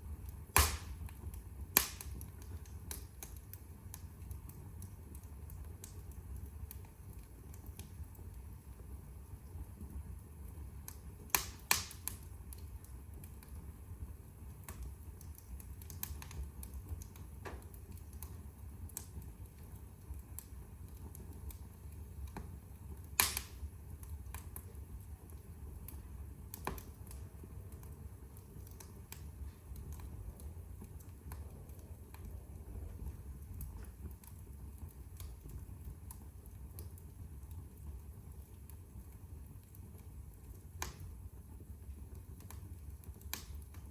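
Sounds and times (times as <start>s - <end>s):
fire pops: 0.0s - 43.9s
wood fire crackling: 0.0s - 43.9s
low steady rumble: 12.2s - 43.9s.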